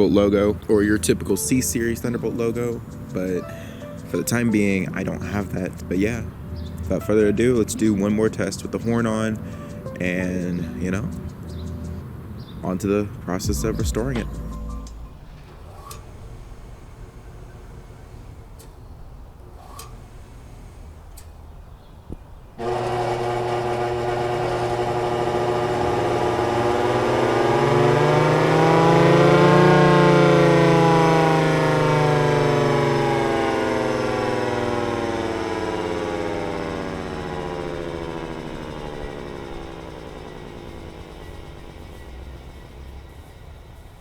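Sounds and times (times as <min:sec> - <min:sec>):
warning siren winding: 0:15.2 - 0:21.5, 0:22.6 - 0:44.0.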